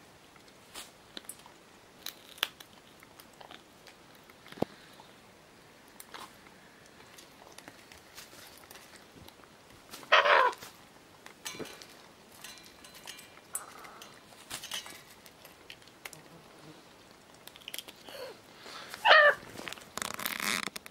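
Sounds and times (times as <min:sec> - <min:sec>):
macaw calling: 0:10.0 - 0:10.6, 0:19.0 - 0:19.4.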